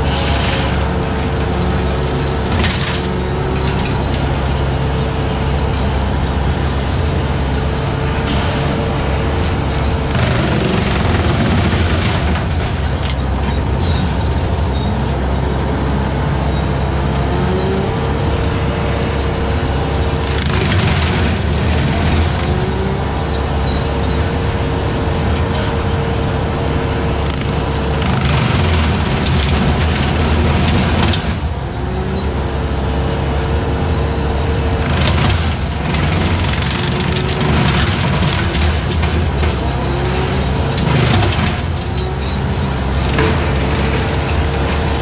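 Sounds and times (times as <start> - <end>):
brush cutter mowing grass: 0.0 - 22.7, 35.1 - 45.0
engine running under load: 0.0 - 45.0.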